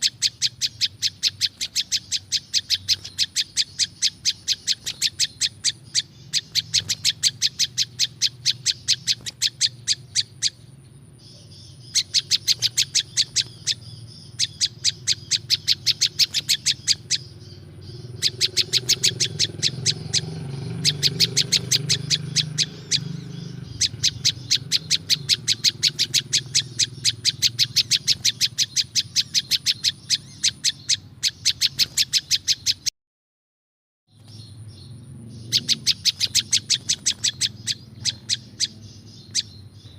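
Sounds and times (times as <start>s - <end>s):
steady low hum: 0.0s - 31.3s
bird chirping rapidly: 0.0s - 32.9s, 34.1s - 39.9s.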